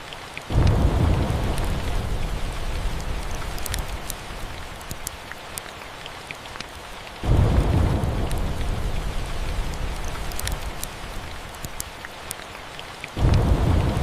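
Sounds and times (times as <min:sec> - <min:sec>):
steady rain: 0:00.0 - 0:14.0
rolling thunder: 0:00.5 - 0:04.8, 0:07.2 - 0:11.5, 0:13.2 - 0:14.0
sharp ticks: 0:10.3 - 0:10.9.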